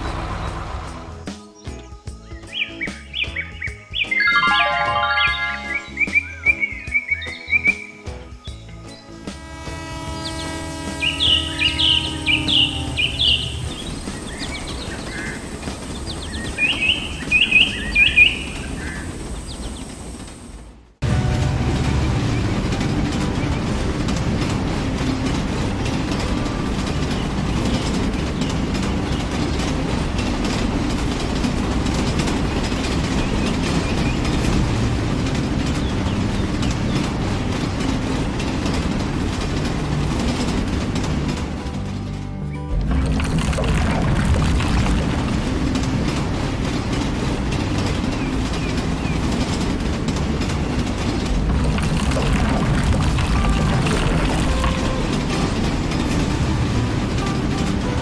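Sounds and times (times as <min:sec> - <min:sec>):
heavy machinery rumbling: 0:00.0 - 0:01.3, 0:10.3 - 0:26.5, 0:42.7 - 0:46.4, 0:50.5 - 0:55.9.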